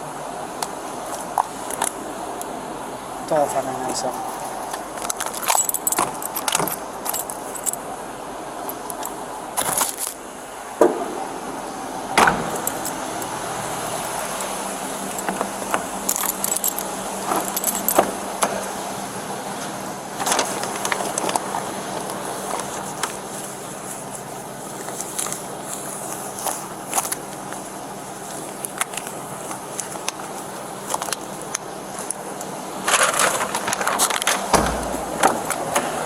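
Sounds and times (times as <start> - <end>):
steady background hum: 0.0 - 36.0
metal jingling and clinking: 4.9 - 7.8, 8.7 - 10.1, 12.4 - 13.1, 15.0 - 18.2.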